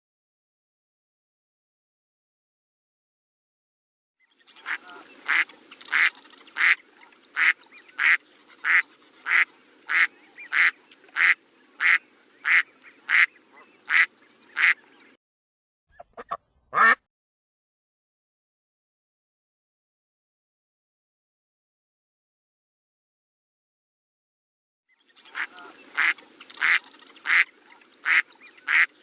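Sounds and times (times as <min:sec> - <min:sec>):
duck quacking: 0:04.6 - 0:06.8, 0:07.4 - 0:14.8, 0:16.0 - 0:17.0, 0:25.3 - 0:29.0.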